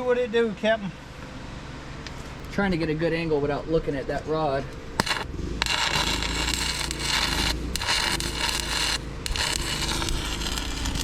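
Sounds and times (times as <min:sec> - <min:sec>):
welding arc crackling: 0:04.9 - 0:11.0.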